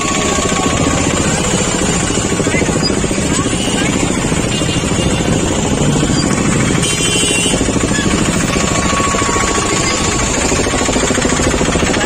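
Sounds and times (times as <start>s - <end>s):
motorcycle engine running: 0.0s - 12.0s
street traffic: 0.0s - 12.0s.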